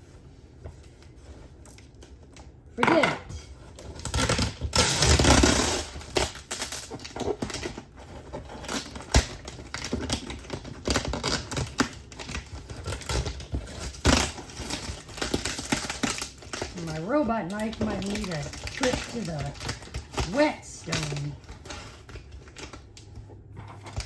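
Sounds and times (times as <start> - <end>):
packaging crinkling: 3.7 - 24.0
knife scraping packing tape: 3.8 - 16.8.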